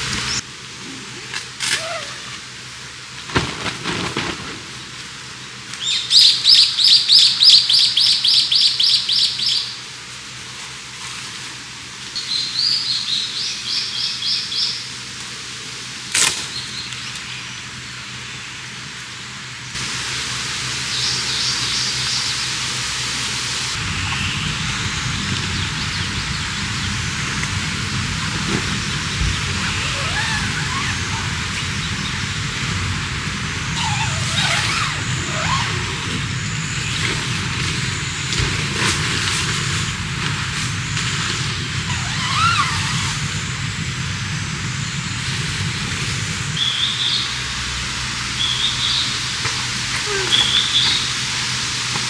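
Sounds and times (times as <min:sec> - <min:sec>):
steady rushing background: 0:23.6 - 0:41.9, 0:42.8 - 0:49.9.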